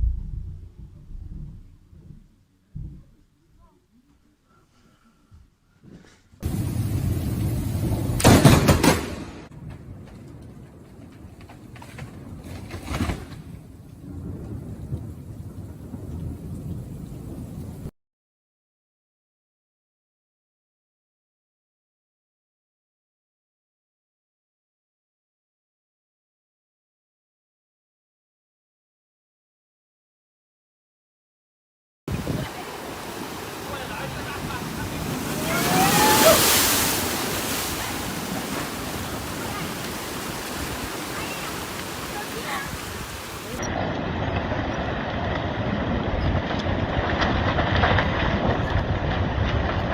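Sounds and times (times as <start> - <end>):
thunder crack: 0.0 - 2.4, 6.4 - 17.9, 32.1 - 49.9
thunder rumbling: 0.0 - 3.2, 6.4 - 17.9, 32.1 - 49.9
wind: 0.0 - 17.9, 32.1 - 49.9
rain hiss: 6.4 - 8.4, 14.1 - 17.9, 32.1 - 43.7
rushing water: 32.1 - 49.9.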